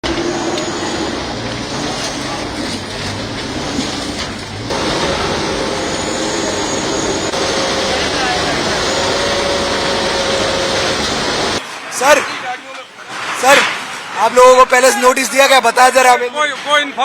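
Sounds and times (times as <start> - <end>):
heavy engine running: 0.0 - 11.6
street noise: 0.0 - 17.0
background voices: 4.7 - 11.6.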